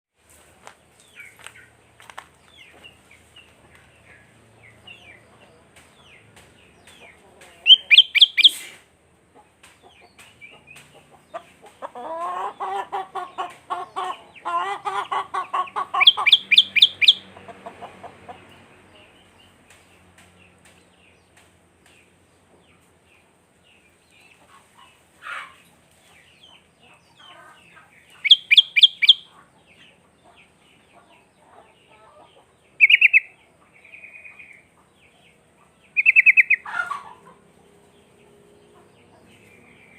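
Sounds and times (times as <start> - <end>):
chicken clucking: 0.3 - 39.9
bird singing rapid bright notes: 7.6 - 8.6, 16.0 - 17.3, 28.0 - 29.3, 32.8 - 34.6, 35.9 - 36.7.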